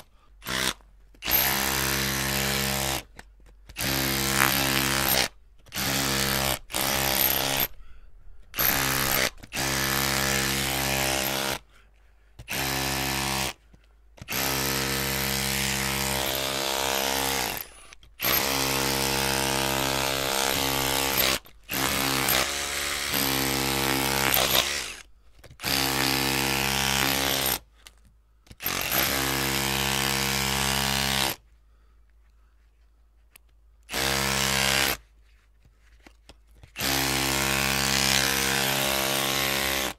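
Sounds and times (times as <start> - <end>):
electric drill bursts: 0.5 - 2.9, 3.8 - 7.7, 8.6 - 11.6, 14.3 - 25.0.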